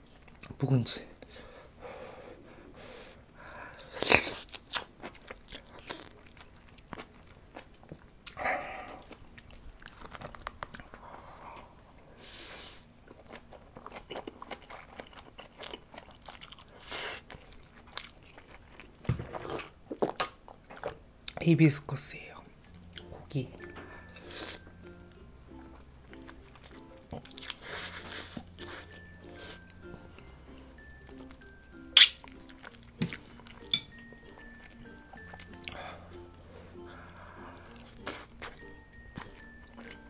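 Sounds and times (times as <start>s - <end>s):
chewing and biting food: 3.7s - 11.6s, 13.0s - 21.4s, 26.1s - 40.0s
wet mouth clicks and smacks: 31.9s - 33.2s.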